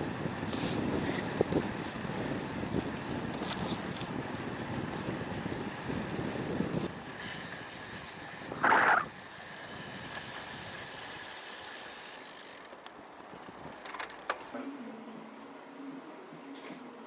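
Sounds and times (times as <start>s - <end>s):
bicycle high buzz: 0.2s - 12.8s.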